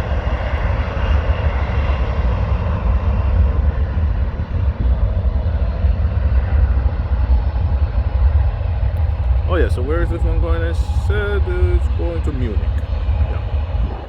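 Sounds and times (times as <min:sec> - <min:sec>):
distant jet engine roar: 0:00.0 - 0:14.0
wind rumble on microphone: 0:00.0 - 0:14.0.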